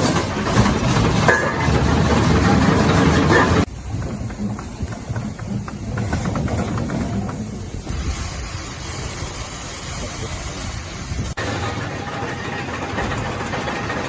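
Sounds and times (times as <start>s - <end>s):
excavator engine rumbling: 0.0s - 14.0s
steady high hiss: 7.5s - 11.4s
loud noisy burst: 7.9s - 13.5s.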